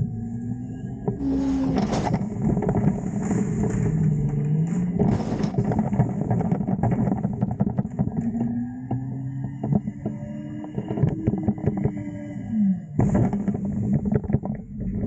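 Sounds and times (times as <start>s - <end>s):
garbage truck engine revving: 0.0s - 7.4s
metal clanking and banging: 1.2s - 6.9s.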